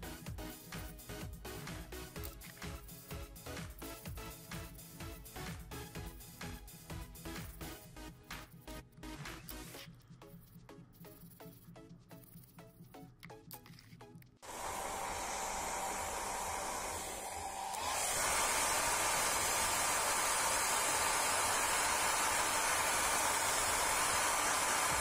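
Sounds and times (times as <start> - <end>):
hair dryer blowing: 14.4 - 25.0.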